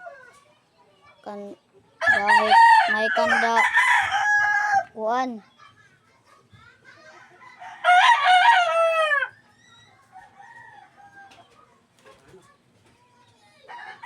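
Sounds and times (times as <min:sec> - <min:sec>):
rooster crowing: 0:02.0 - 0:04.9, 0:07.4 - 0:09.4, 0:10.1 - 0:11.4.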